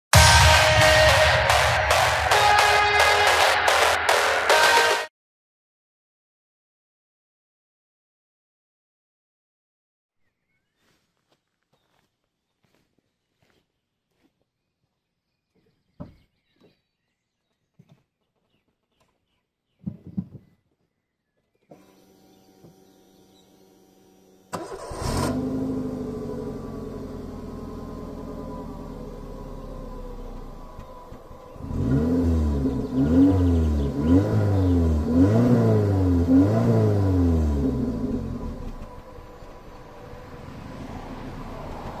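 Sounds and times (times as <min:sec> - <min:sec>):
faint bird chirps: 0:10.2 - 0:11.1
footsteps: 0:10.8 - 0:14.5
knocks and thumps: 0:19.8 - 0:20.6
car engine idling and revving: 0:21.7 - 0:42.0.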